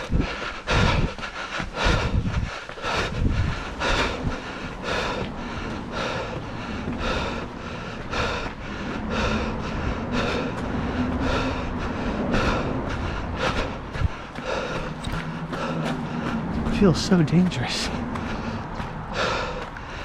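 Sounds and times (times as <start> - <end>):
man breathing heavily: 0.0 - 20.0
wind rumble on microphone: 0.0 - 20.0
footfalls on dirt trail: 13.9 - 19.9.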